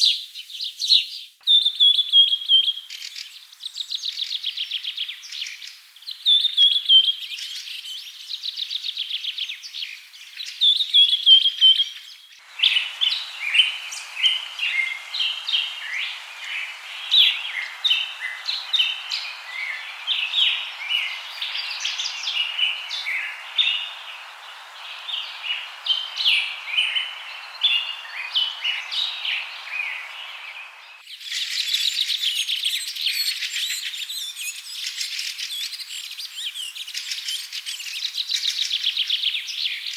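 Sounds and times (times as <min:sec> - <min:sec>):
chorus of bird chirps: 0:00.0 - 0:39.9
steady hiss: 0:12.4 - 0:32.1
bird trilling: 0:12.5 - 0:30.4.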